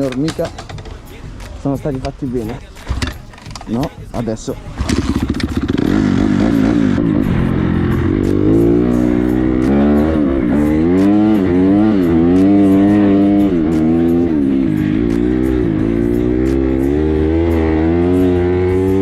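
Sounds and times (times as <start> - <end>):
motorcycle engine revving: 4.6 - 19.0.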